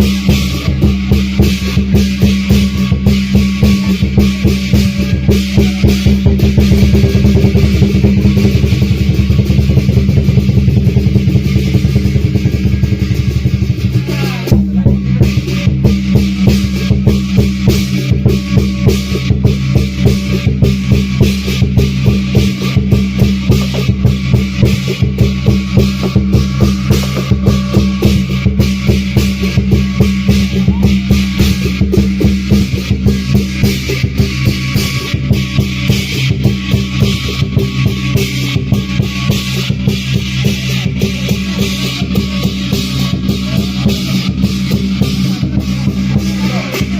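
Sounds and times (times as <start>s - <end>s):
cymbals crashing: 0.0s - 46.9s
lion dance drum: 0.0s - 46.9s.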